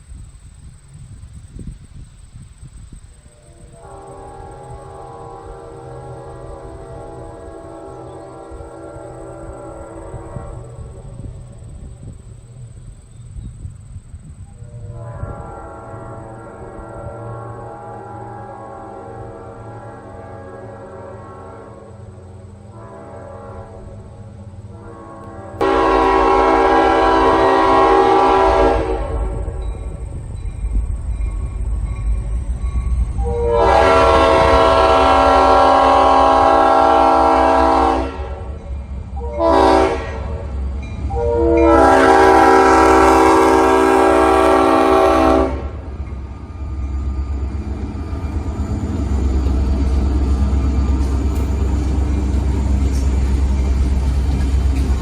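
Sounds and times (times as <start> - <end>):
train rumble: 0.0 - 55.0
locomotive air horn blasts: 3.2 - 11.3, 14.5 - 29.6, 33.0 - 46.1.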